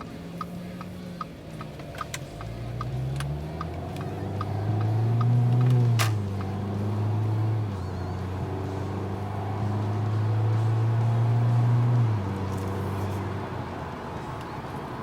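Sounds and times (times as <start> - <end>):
light ticks: 0.0 - 6.6
car engine accelerating: 0.0 - 15.0.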